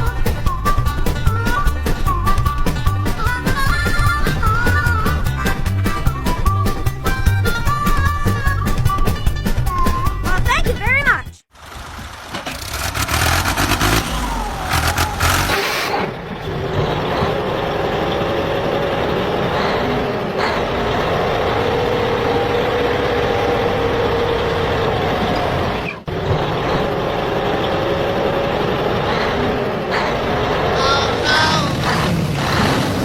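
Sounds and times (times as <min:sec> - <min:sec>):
truck motor drone with whine: 0:11.6 - 0:31.2.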